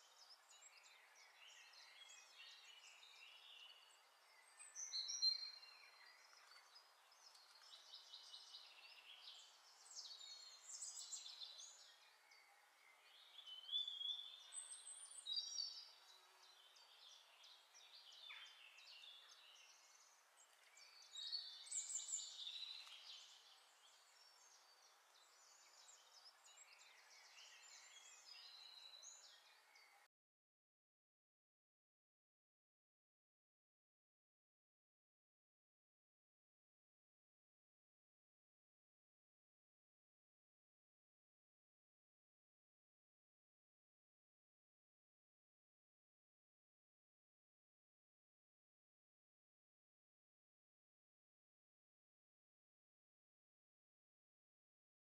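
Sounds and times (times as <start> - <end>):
faint birdsong: 0.0 - 30.1
low steady hiss: 0.0 - 30.1.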